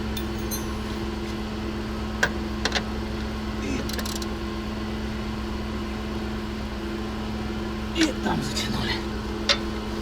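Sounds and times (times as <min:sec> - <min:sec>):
mechanical hum: 0:00.0 - 0:10.0.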